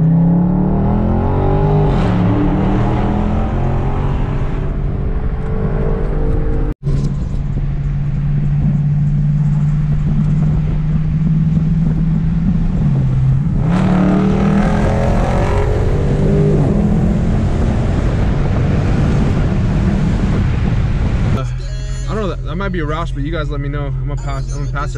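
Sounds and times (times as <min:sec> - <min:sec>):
car engine exhaust drone: 0:00.0 - 0:24.9.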